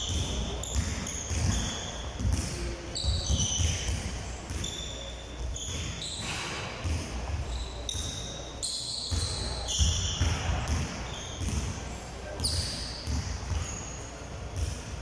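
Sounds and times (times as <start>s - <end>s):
basketball bouncing on hard court: 0.0s - 4.9s, 5.6s - 7.2s, 9.1s - 11.8s, 12.4s - 13.9s, 14.6s - 15.0s
shoes squeaking on floor: 0.0s - 14.2s.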